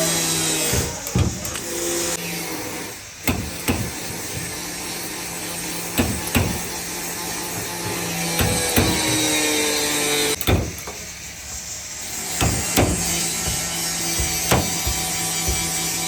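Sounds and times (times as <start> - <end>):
steady low hum: 0.0 - 16.0
hammer striking car panel: 3.3 - 4.0, 6.0 - 6.7, 8.4 - 9.3, 10.4 - 11.0, 12.4 - 15.8.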